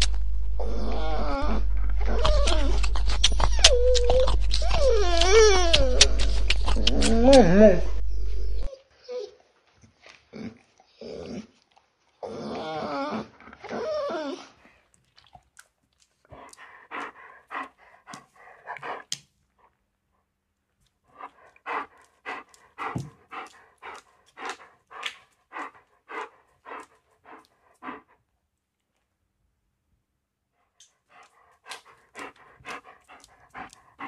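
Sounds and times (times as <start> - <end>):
dog howling call: 0.6 - 8.7
dog panting: 1.9 - 8.7, 16.3 - 19.7, 21.1 - 28.2, 30.6 - 34.0.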